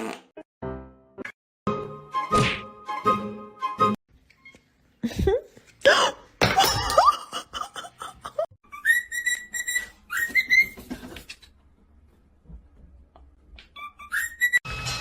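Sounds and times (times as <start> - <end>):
short squeaky glides: 8.8 - 10.9, 13.8 - 14.6
high whistled notes: 13.8 - 14.7.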